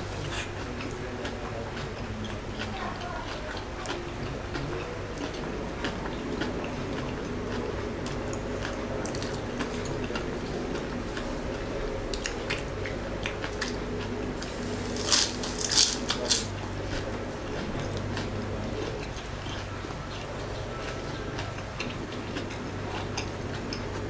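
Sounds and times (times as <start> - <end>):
person chewing: 0.0 - 24.0
loud crunches: 14.4 - 17.0.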